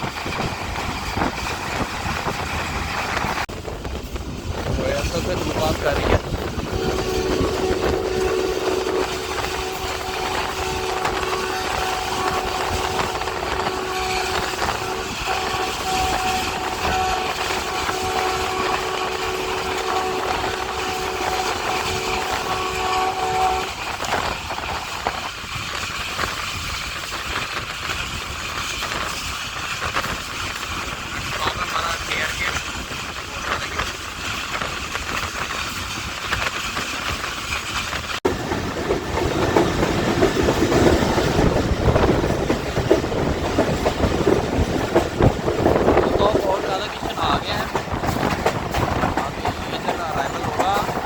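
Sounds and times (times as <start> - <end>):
moving train running noise: 0.0 - 51.0
locomotive air horn: 6.7 - 24.3.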